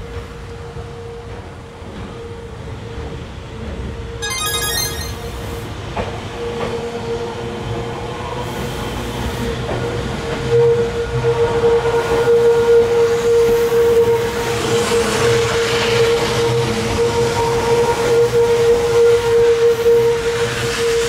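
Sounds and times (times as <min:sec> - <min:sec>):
high flutter of tones: 0:04.2 - 0:05.5.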